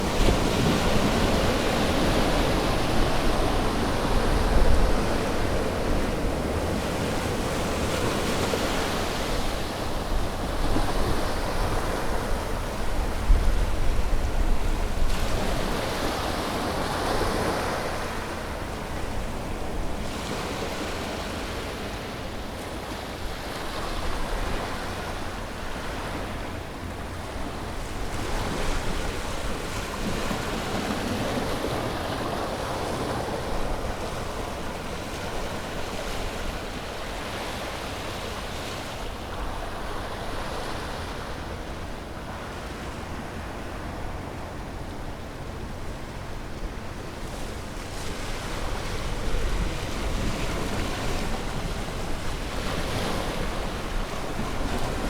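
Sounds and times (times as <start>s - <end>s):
wind noise on microphone: 0.0s - 20.5s
ocean waves breaking on shore: 0.0s - 55.0s.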